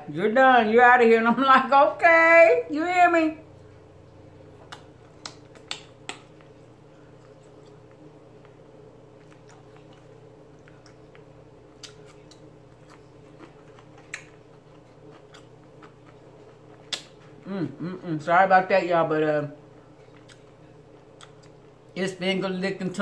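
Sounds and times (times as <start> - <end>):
faint steady hum: 0.0 - 23.0
person chewing: 4.0 - 18.0, 19.8 - 22.0.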